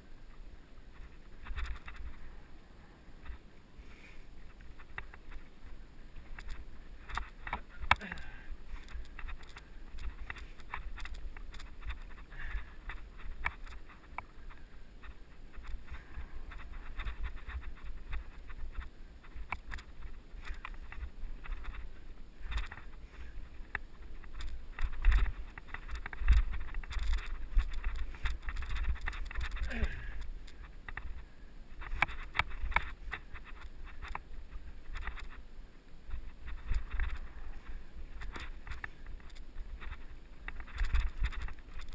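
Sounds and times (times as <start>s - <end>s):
wind rumble on camera: 0.0s - 3.6s, 4.3s - 41.9s
bike frame and chain rattling: 4.5s - 31.2s, 36.1s - 41.9s.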